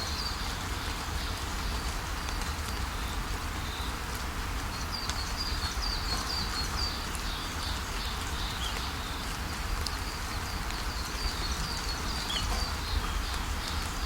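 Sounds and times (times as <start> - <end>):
steady rainfall: 0.0 - 14.0
bird chirping: 10.8 - 13.8.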